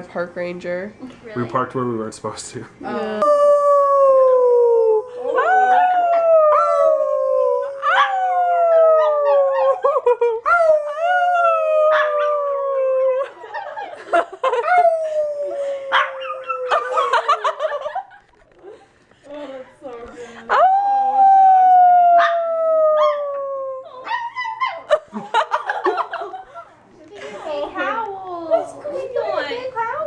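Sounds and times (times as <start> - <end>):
dog howling: 3.2 - 13.4, 14.6 - 17.4, 20.5 - 24.9.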